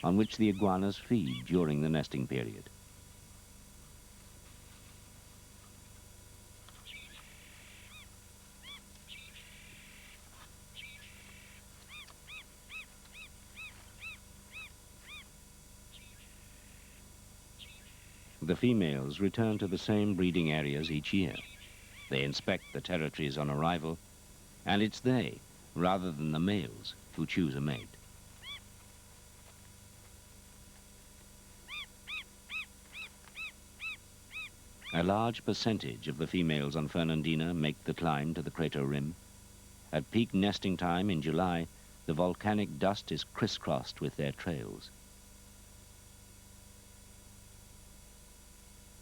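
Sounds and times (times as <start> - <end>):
buzzy rattling bird calls: 0.0 - 1.6, 6.8 - 15.3, 17.6 - 18.4, 20.8 - 22.9, 31.7 - 35.1
faint low hum: 0.0 - 49.0.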